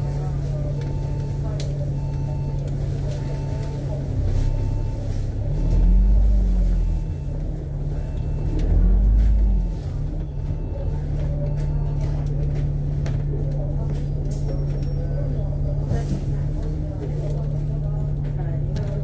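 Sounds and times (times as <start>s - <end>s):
bus diesel engine revving: 0.0s - 19.0s.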